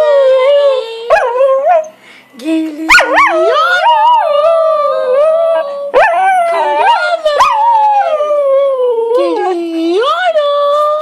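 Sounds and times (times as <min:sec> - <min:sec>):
dog howling: 0:02.9 - 0:09.6.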